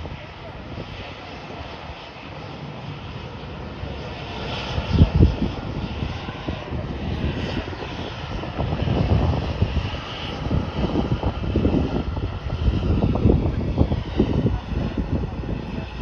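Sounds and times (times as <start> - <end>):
jet engines roaring at takeoff: 0.0 - 16.0.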